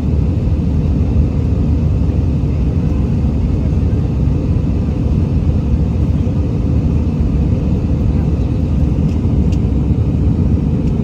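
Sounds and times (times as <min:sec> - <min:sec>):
airliner cabin jet rumble: 0:00.0 - 0:11.0.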